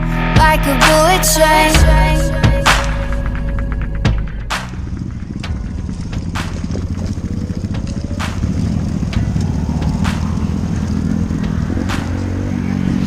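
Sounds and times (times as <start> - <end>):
motorcycle engine running under load: 1.8 - 13.0
sharp clacks: 2.7 - 12.6.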